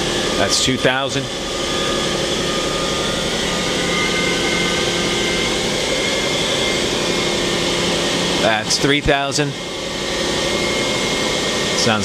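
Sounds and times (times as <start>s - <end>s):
higher machine whine: 0.0s - 12.0s
machine spindle hum: 0.0s - 12.0s.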